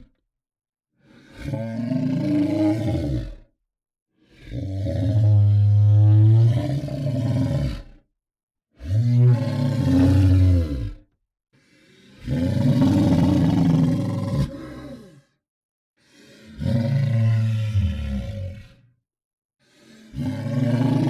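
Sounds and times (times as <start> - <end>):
deep monster bellow: 16.6 - 18.7.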